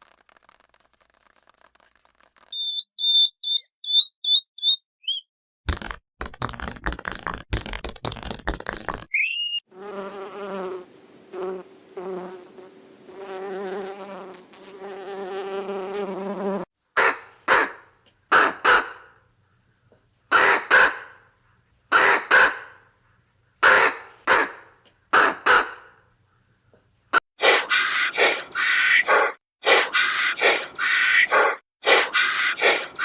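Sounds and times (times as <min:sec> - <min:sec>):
insect buzzing: 0:09.7 - 0:16.7, 0:27.4 - 0:33.0
dog barking: 0:17.0 - 0:17.8, 0:18.4 - 0:19.0, 0:20.4 - 0:21.2, 0:22.0 - 0:22.8, 0:23.6 - 0:24.6, 0:25.2 - 0:25.9, 0:27.4 - 0:33.0.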